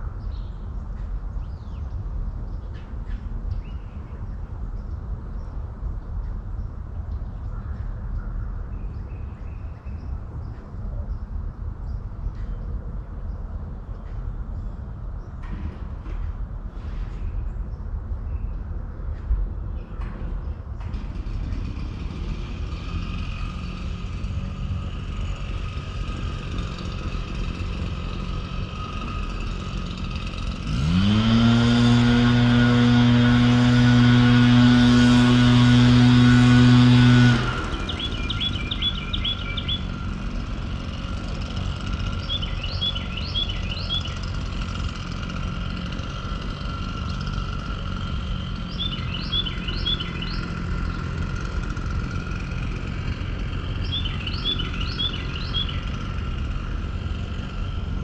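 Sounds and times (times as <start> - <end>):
birds chirping: 0.0 - 15.6, 16.7 - 58.0
low outdoor rumble: 0.0 - 58.0
motor humming: 20.9 - 58.0.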